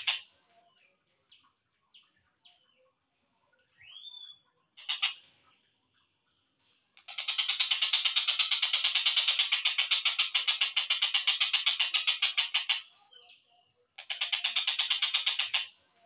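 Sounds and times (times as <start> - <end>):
bird chirps: 3.6 - 5.2.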